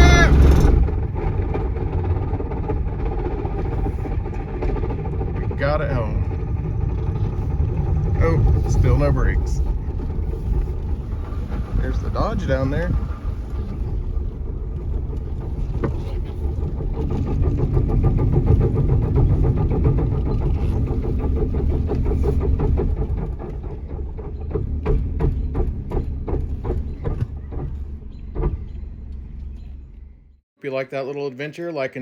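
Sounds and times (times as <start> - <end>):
car drivetrain rumbling: 0.0 - 30.4
irregular clicks and knocks: 0.0 - 30.4.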